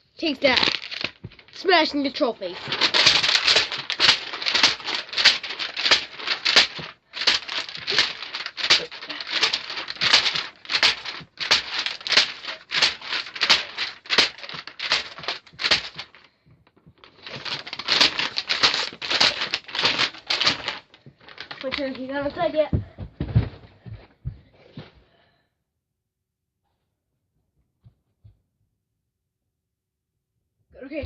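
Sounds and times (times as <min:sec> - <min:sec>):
paper crunching and crinkling: 0:00.2 - 0:22.4.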